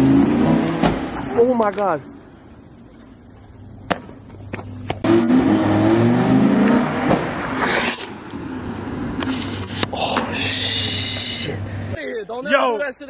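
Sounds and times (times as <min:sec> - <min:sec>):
car engine revving: 0:00.0 - 0:01.4, 0:05.0 - 0:09.7.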